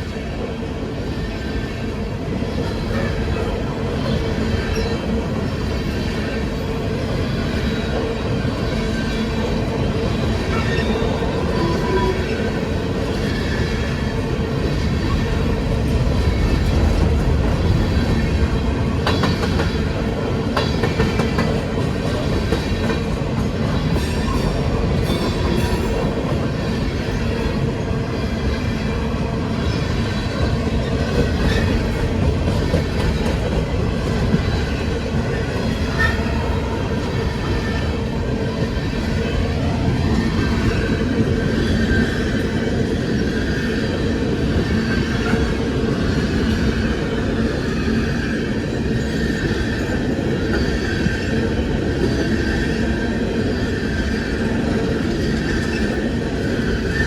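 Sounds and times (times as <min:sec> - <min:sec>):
train rumbling: 0:00.0 - 0:57.0
wheels clacking on rails: 0:00.0 - 0:57.0.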